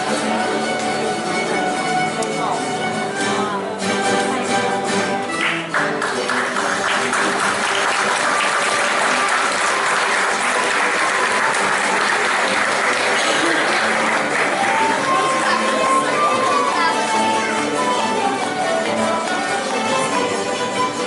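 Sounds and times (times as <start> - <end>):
plucked string music: 0.0 - 21.0
audience applause: 5.3 - 21.0.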